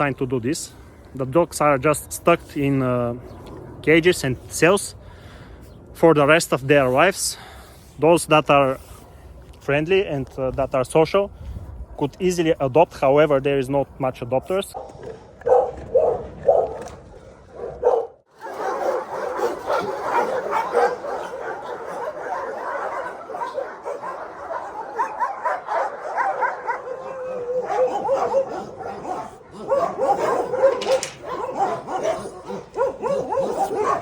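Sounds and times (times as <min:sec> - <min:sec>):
many dogs barking and yipping: 0:14.3 - 0:34.0.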